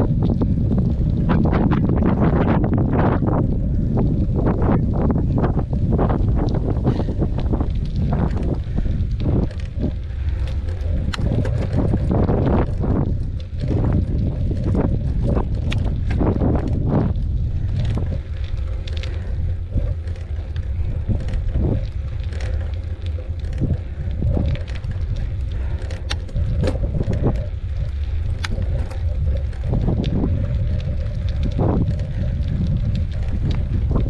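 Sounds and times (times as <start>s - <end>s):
bicycle clicks and rattles: 0.0s - 34.0s
wind buffeting microphone: 0.0s - 34.0s.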